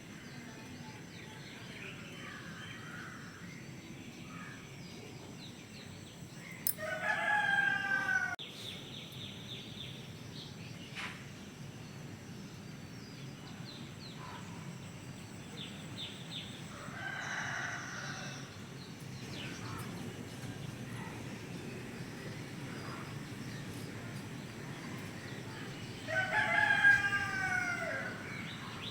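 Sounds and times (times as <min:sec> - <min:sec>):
rooster crowing: 0:06.7 - 0:08.4, 0:16.7 - 0:18.6, 0:25.8 - 0:28.8
small birds chirping: 0:18.5 - 0:28.9.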